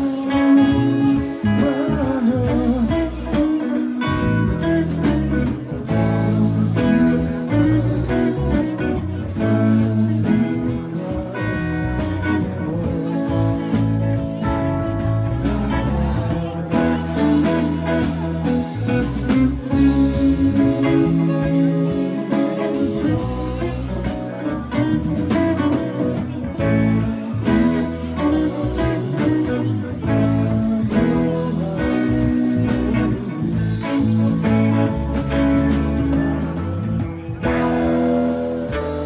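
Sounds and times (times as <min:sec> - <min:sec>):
lead guitar: 0:00.0 - 0:39.0
live rock band playing: 0:00.0 - 0:39.0.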